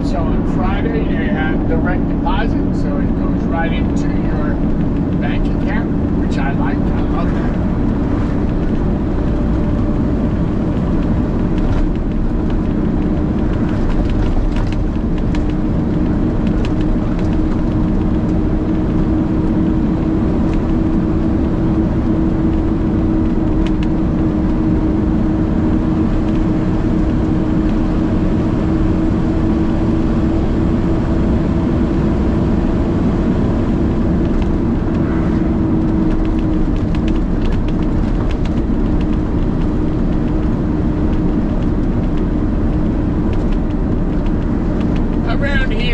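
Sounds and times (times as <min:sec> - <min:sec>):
road noise: 0:00.0 - 0:45.9
truck diesel engine running: 0:00.0 - 0:45.9.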